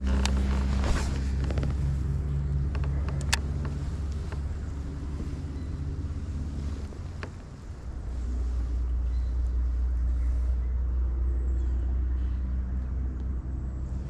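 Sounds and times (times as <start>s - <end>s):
steady low rumble: 0.0s - 14.0s
sharp clicks and taps: 2.7s - 4.5s.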